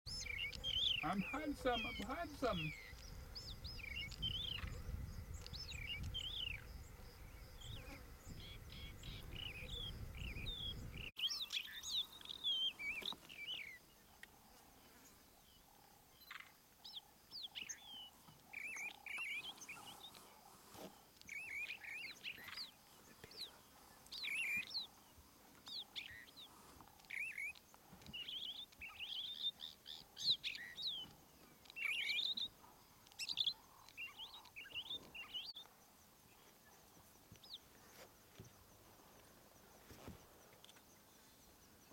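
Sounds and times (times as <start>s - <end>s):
songbirds chirping: 0.1s - 41.9s.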